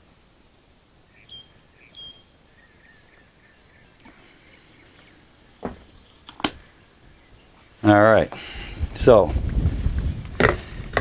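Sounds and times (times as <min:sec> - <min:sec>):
high bird chirps: 0:01.1 - 0:05.2.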